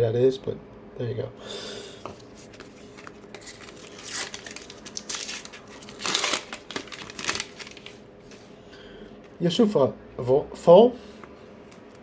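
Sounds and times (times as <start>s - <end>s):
wrapper crinkling and tearing: 2.5s - 8.0s.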